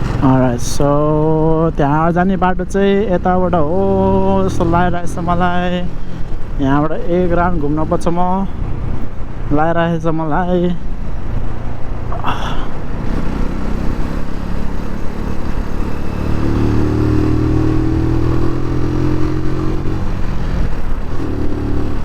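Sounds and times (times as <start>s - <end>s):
motorcycle engine accelerating: 0.0s - 1.6s, 3.1s - 7.7s, 10.9s - 22.0s
steady rushing noise: 0.0s - 22.0s.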